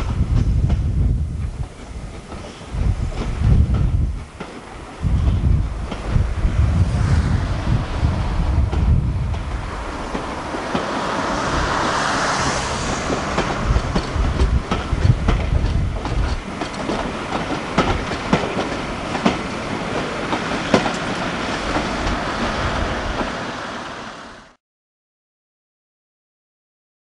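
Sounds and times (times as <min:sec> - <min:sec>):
passing train rumble: 0:00.0 - 0:24.6
wheels clicking over rail joints: 0:13.1 - 0:22.5.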